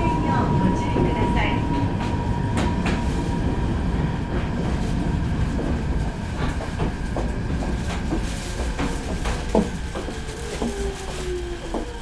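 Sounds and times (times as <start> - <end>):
train wheels rumbling on rail: 0.0 - 12.0
clicks and clacks: 5.6 - 12.0.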